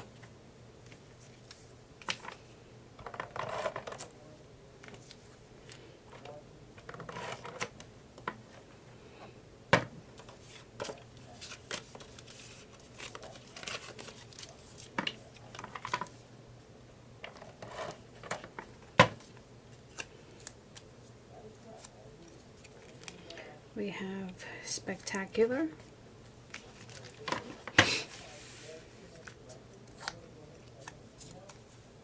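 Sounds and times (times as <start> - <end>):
paper rustling: 10.2 - 16.2, 26.5 - 31.9.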